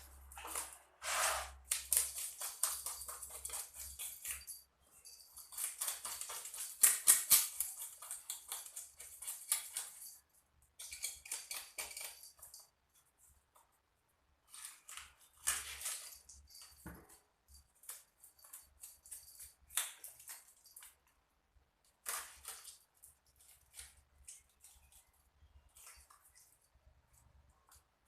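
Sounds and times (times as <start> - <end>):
knife scraping and cutting fish: 0.4 - 4.5.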